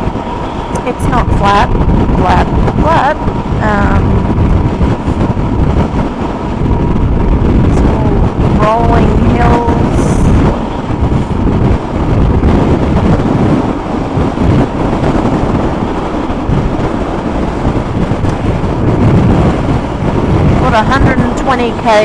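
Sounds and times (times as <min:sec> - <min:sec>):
road noise: 0:00.0 - 0:22.0
wind blasting on microphone: 0:00.0 - 0:22.0.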